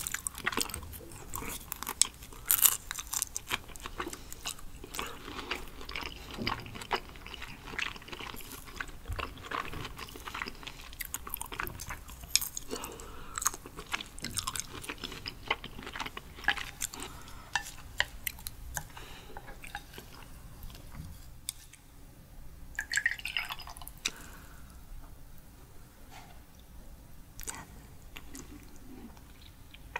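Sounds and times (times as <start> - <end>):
liquid poured into glass: 22.8 - 23.9.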